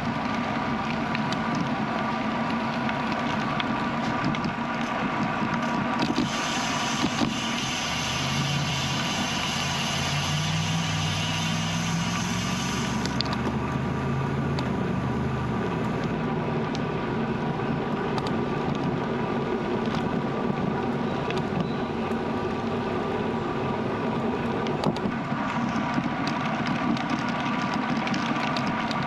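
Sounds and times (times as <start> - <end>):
bicycle tyre noise on road: 0.0 - 29.0
motor vehicle passing: 6.2 - 16.4.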